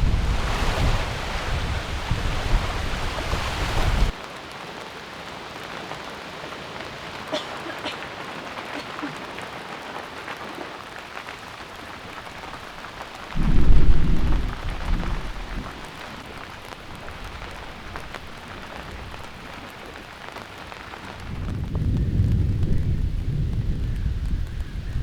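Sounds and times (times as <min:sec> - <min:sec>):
thunder rumbling: 0:00.0 - 0:04.2, 0:12.4 - 0:20.2, 0:21.0 - 0:25.0
heavy rain falling: 0:00.0 - 0:25.0.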